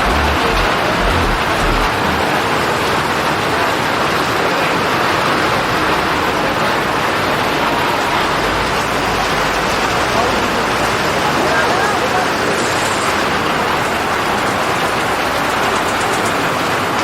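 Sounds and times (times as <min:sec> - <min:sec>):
low rumble: 0:00.0 - 0:02.4
heavy rain pouring: 0:00.0 - 0:02.9.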